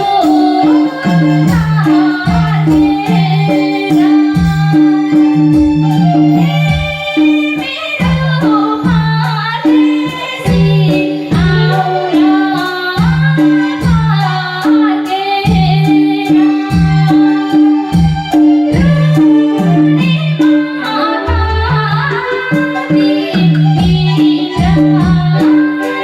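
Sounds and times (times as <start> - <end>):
backing track with beat: 0.0 - 26.0
woman singing: 0.0 - 26.0.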